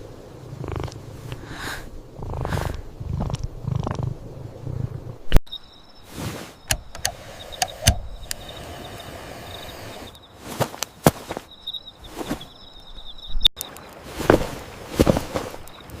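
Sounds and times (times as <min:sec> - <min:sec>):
crickets chirping: 0:00.0 - 0:16.0
sharp clicks and pops: 0:06.6 - 0:08.5.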